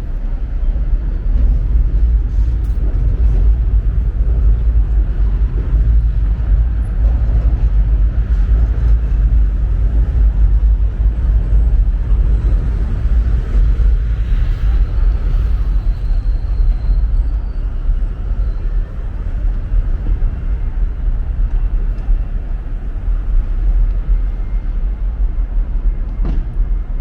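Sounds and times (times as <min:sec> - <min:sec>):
low city street rumble: 0:00.0 - 0:27.0.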